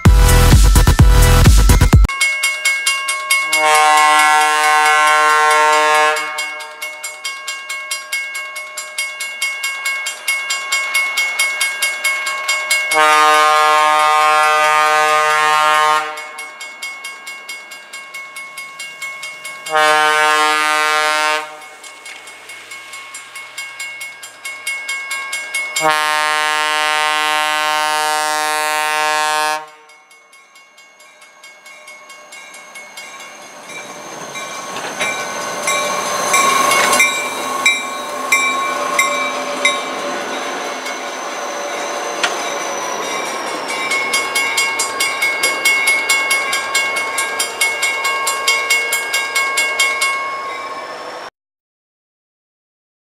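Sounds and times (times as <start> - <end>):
crossing signal bell: 0.0 - 51.3
train air horn blasts: 3.5 - 6.8, 12.9 - 16.4, 19.7 - 21.8, 25.8 - 29.9
train rumbling past: 9.2 - 51.3.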